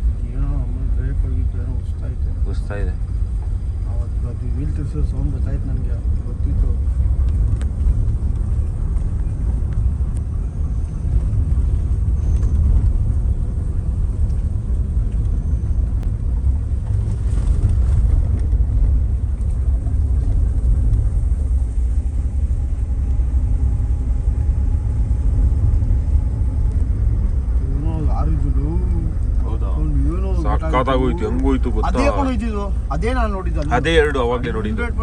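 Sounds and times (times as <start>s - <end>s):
car engine and tyres rumbling: 0.0s - 35.0s.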